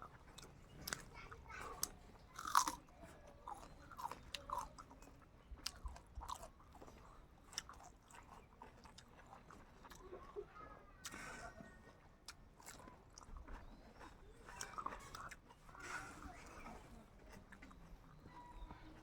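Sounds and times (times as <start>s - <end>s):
chewing with wet mouth smacks: 0.0s - 19.0s
small crunches: 1.8s - 2.8s.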